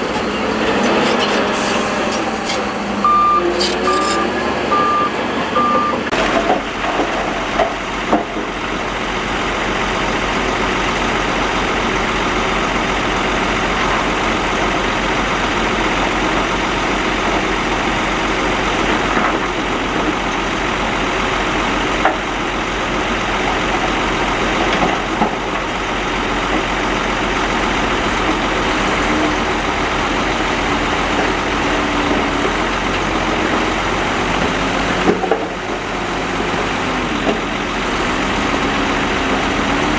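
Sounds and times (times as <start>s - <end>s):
heavy machinery engine running: 0.0s - 39.9s
reversing beeper: 2.9s - 6.2s.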